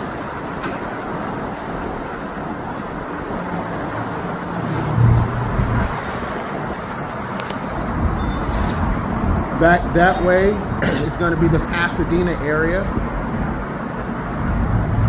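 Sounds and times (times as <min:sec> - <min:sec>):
road traffic noise: 0:00.0 - 0:15.0
low engine hum: 0:14.3 - 0:15.0.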